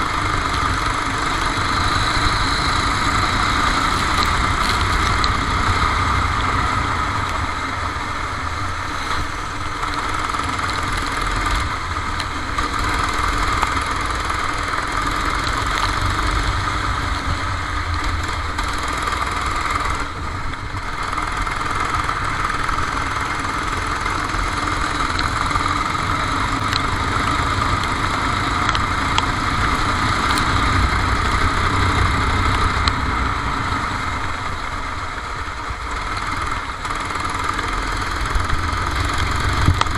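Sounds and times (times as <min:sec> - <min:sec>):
kart engine running: 0:00.0 - 0:39.9.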